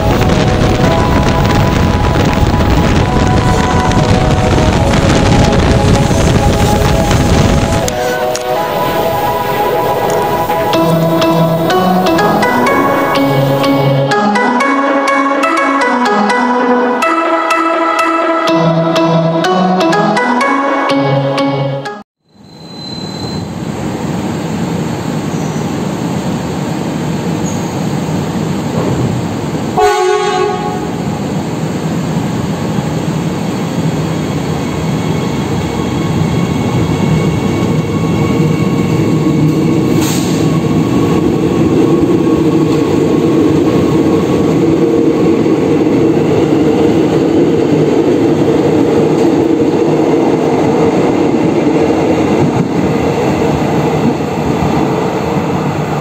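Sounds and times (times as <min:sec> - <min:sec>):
train wheels rumbling on rails: 0:00.0 - 0:13.6, 0:23.5 - 0:56.0
train horn blast: 0:00.0 - 0:18.6, 0:29.8 - 0:31.3.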